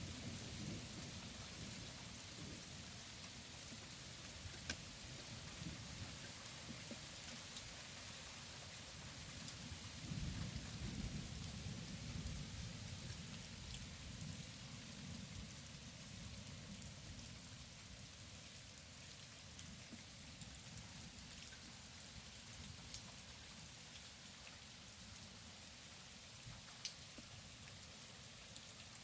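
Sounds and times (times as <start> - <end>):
low rumble of thunder: 0.0 - 2.8, 9.7 - 17.4
steady rain falling: 0.0 - 29.0.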